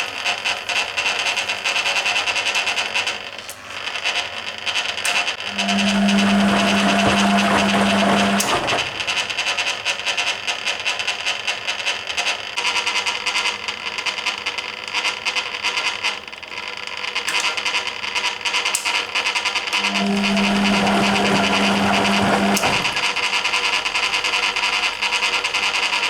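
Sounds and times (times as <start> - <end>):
low motor hum: 5.4 - 9.5, 19.7 - 23.7
laundry sloshing in washing machine drum: 5.5 - 9.5, 19.8 - 23.3.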